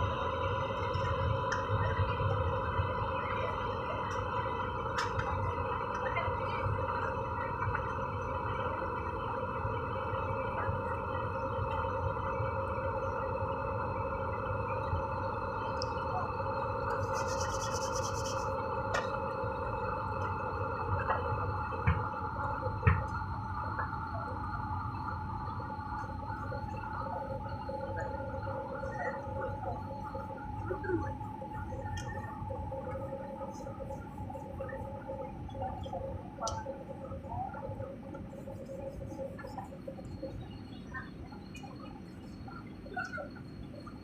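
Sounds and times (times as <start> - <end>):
airliner cabin drone: 0.0 - 44.0.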